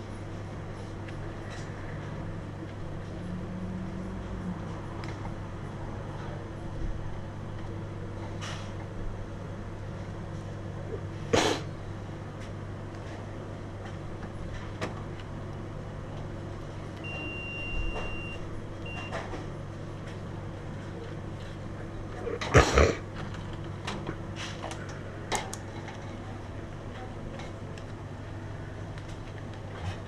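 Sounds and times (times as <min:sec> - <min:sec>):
low mechanical hum: 0:00.0 - 0:30.0
high electronic beep: 0:17.1 - 0:19.2.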